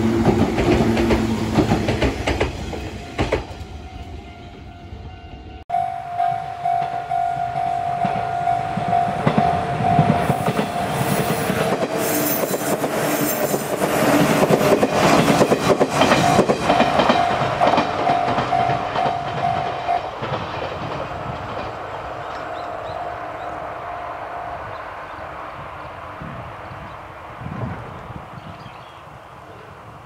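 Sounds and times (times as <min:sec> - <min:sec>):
train wheels clattering: 0:00.0 - 0:03.7, 0:06.6 - 0:23.0
pulsing ringing tone: 0:03.9 - 0:11.2.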